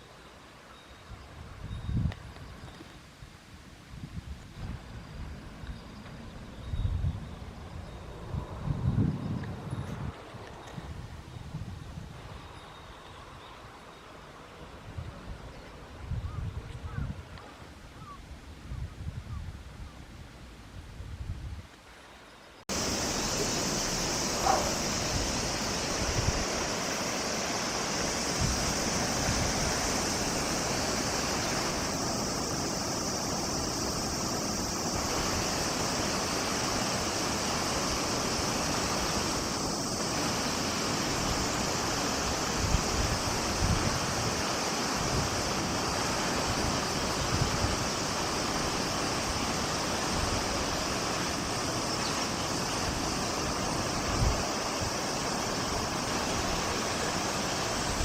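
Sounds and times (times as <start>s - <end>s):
wind buffeting microphone: 3.8s - 13.7s, 14.7s - 21.7s, 22.7s - 58.0s
river water rushing: 22.7s - 58.0s.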